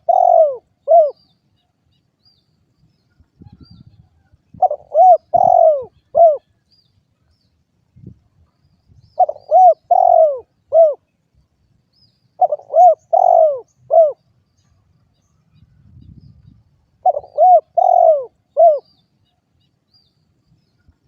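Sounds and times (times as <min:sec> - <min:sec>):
dove cooing: 0:00.0 - 0:01.2, 0:04.5 - 0:06.6, 0:09.2 - 0:11.1, 0:12.4 - 0:14.2, 0:17.0 - 0:18.9.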